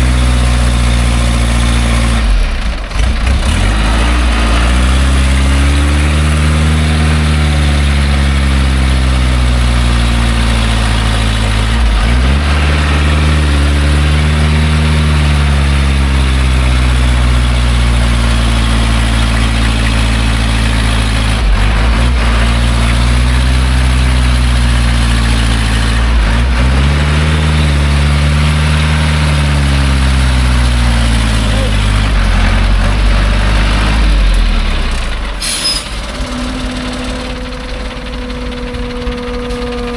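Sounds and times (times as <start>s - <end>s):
truck engine working hard: 0.0s - 39.9s.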